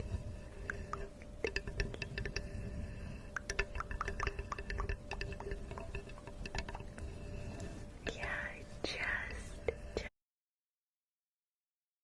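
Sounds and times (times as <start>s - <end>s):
water dripping: 0.0s - 8.4s
faint steady hum: 0.0s - 10.2s.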